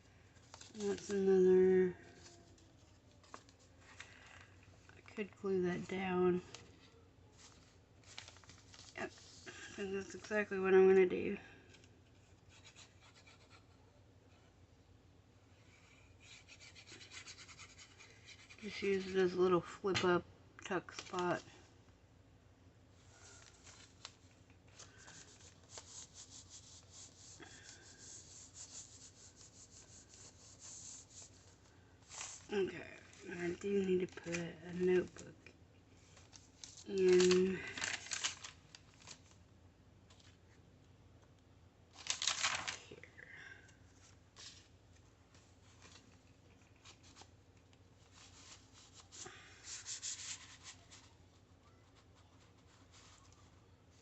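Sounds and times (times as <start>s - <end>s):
paper rubbed by hand: 15.7s - 19.2s, 24.8s - 32.5s, 48.1s - 51.1s.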